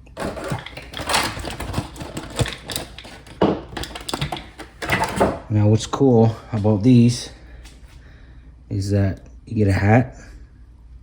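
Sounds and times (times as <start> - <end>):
plastic packaging crinkling: 0.0 - 5.1.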